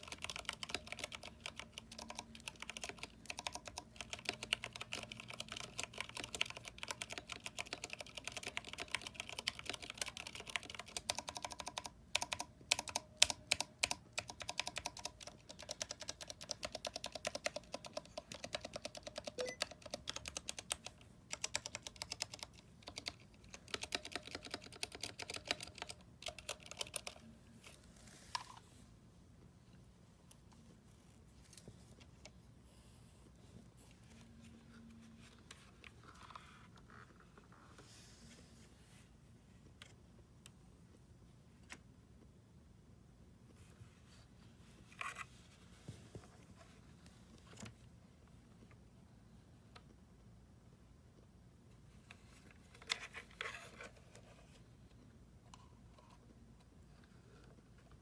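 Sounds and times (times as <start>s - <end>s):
mechanical keyboard typing: 0.0s - 27.2s.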